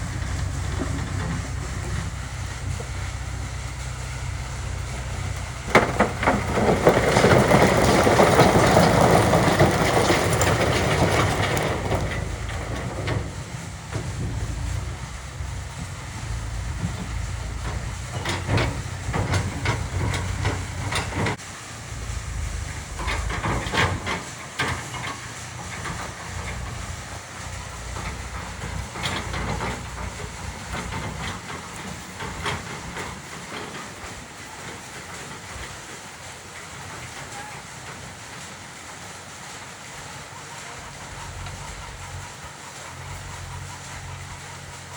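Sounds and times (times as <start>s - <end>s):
diesel engine running: 0.0s - 44.9s
rock and metal clanking: 4.7s - 38.5s.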